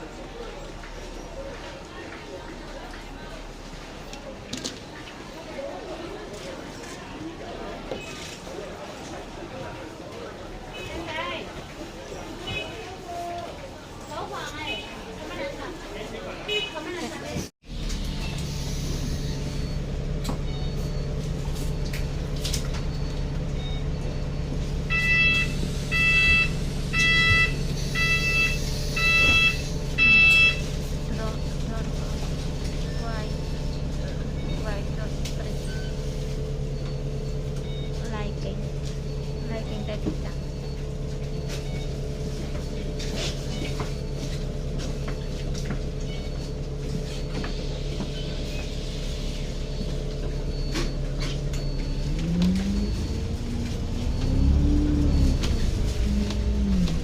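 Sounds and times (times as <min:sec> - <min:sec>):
vehicle engine idling: 0:17.7 - 0:57.0
electronic warning beeps: 0:18.9 - 0:45.4, 0:46.0 - 0:57.0.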